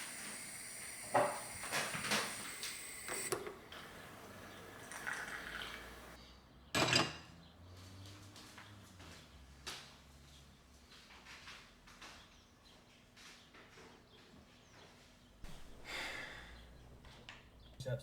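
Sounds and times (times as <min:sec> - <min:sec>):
pots and utensils clinking: 0:03.1 - 0:06.2.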